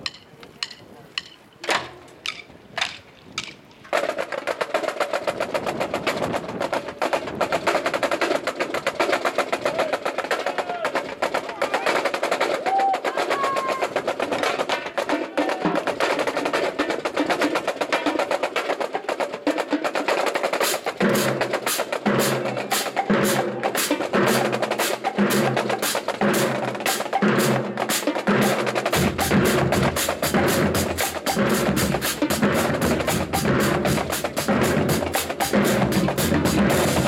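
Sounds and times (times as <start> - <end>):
pitched low drum beats: 2.2 - 37.0
rapid snare drum pattern: 4.0 - 37.0
deep low drum notes: 21.0 - 37.0.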